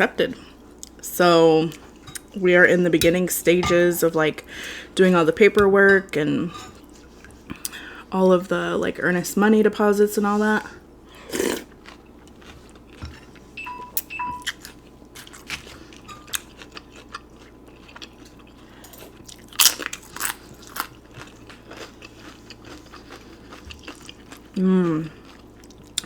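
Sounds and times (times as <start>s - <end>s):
chewing and crunching chips: 11.1s - 13.5s, 14.4s - 26.0s
short beeps: 13.6s - 14.5s.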